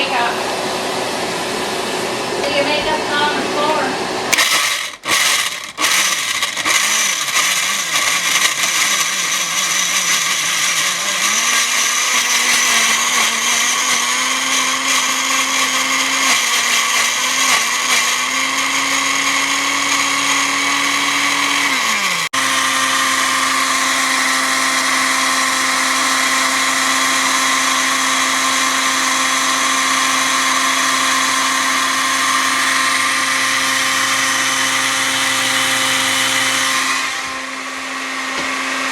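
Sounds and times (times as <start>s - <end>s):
small electric motor whirring: 4.3s - 23.5s.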